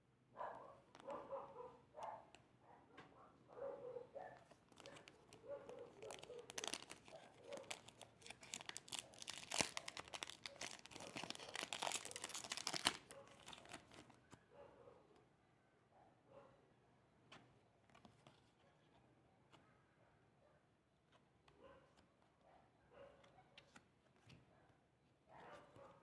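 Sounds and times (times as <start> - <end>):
wrapper crinkling: 4.6 - 14.2
card packet being torn open: 4.7 - 14.2.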